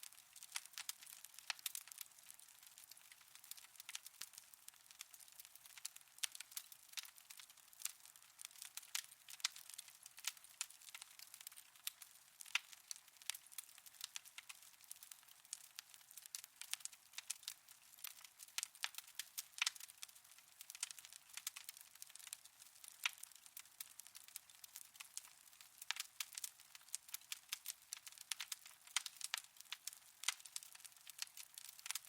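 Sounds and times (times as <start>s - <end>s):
fire crackling in a fireplace: 0.0s - 32.0s.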